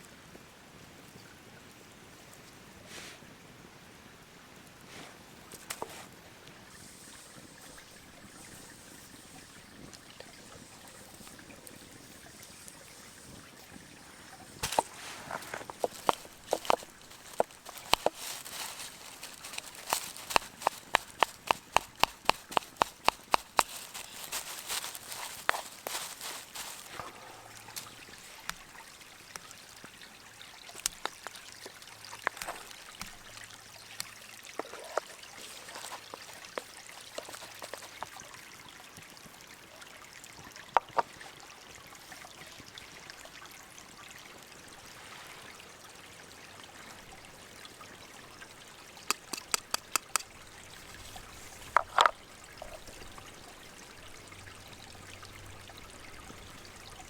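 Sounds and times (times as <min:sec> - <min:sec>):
gentle stream flowing: 0:00.0 - 0:57.0
sharp clicks and knocks: 0:15.5 - 0:26.7, 0:49.1 - 0:50.3.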